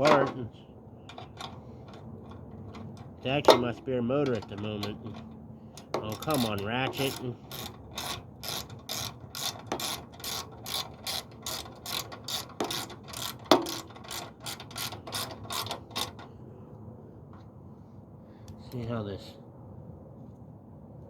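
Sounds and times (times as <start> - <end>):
ratchet wrench clicking: 1.1 - 16.3.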